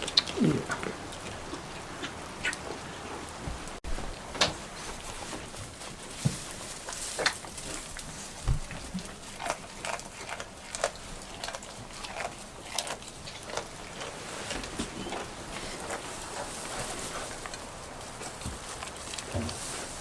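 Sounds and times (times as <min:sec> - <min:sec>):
rain falling steadily: 0:00.0 - 0:10.1.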